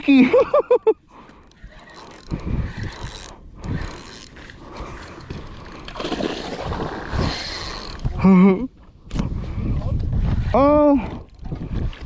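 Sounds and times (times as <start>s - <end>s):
fishing reel gears ratcheting: 1.4s - 6.0s.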